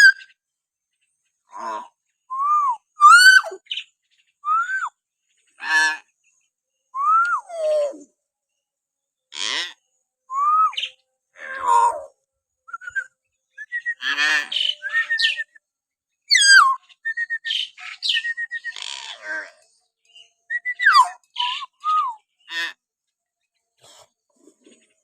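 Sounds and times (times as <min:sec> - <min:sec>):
myna whistles and squawks: 0:02.4 - 0:03.7, 0:07.0 - 0:08.0, 0:12.7 - 0:15.5, 0:16.3 - 0:18.8, 0:20.5 - 0:22.2.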